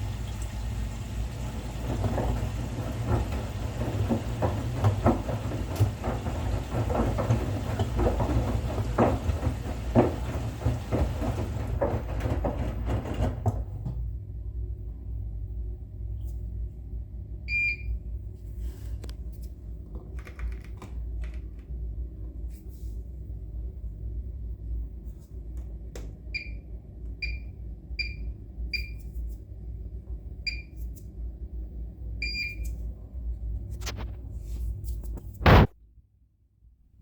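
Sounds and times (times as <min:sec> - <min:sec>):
washing machine panel beeps: 0:17.5 - 0:18.0, 0:26.3 - 0:29.0, 0:30.4 - 0:30.8, 0:32.2 - 0:32.7.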